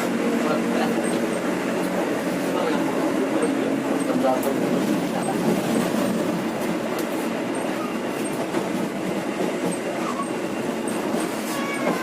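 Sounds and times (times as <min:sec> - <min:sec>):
train carriage rumbling on track: 0:00.0 - 0:12.0.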